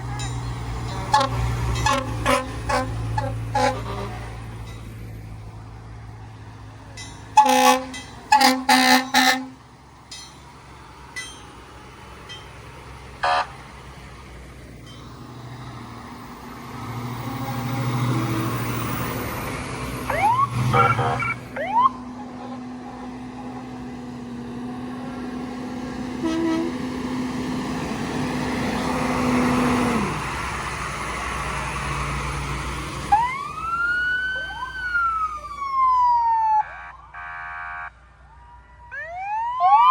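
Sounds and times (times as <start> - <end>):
vehicle engine passing: 0.0 - 37.9
vehicle horn blasts: 1.0 - 4.2, 7.4 - 9.6, 13.2 - 13.6, 26.2 - 26.9
siren chirps: 13.2 - 13.6, 20.0 - 22.6, 33.1 - 39.9.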